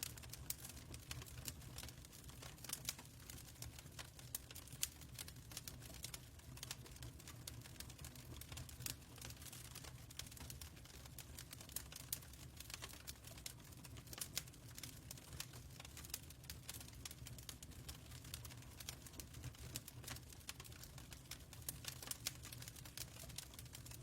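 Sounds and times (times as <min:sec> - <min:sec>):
fireplace crackling: 0:00.0 - 0:24.0.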